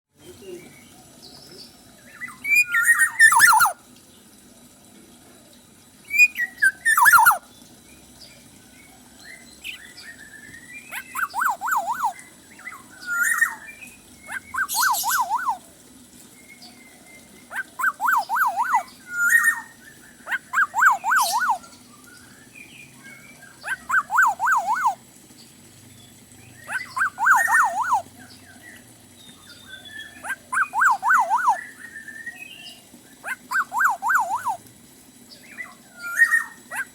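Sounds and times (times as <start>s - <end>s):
oriole singing trill: 2.2s - 3.8s, 6.0s - 7.5s, 9.6s - 15.7s, 17.2s - 21.8s, 22.5s - 25.1s, 26.5s - 28.3s, 29.5s - 34.6s
sharp harsh bird calls: 2.3s - 3.8s, 6.1s - 7.4s, 14.2s - 15.6s, 17.5s - 21.8s, 23.5s - 25.0s, 26.5s - 28.1s.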